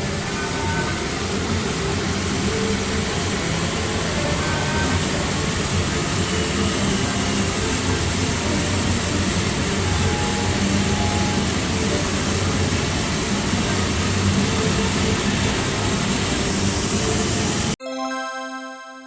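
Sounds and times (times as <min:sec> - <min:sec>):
din of many gaming machines: 0:00.0 - 0:19.0
electronic chime: 0:17.8 - 0:19.0.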